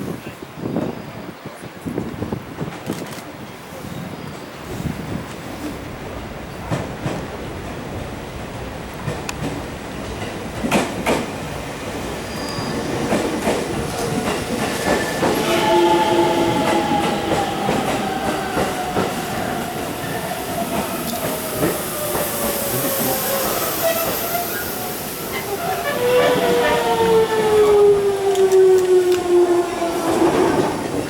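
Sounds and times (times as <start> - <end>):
train whine falling in pitch: 12.2 - 30.7.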